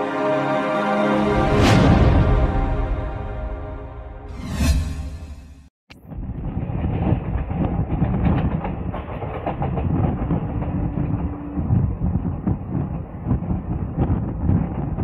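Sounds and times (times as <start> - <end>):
rumble of train wheels on rail: 6.1 - 15.0
sharp clicks over rail joints: 6.8 - 11.4.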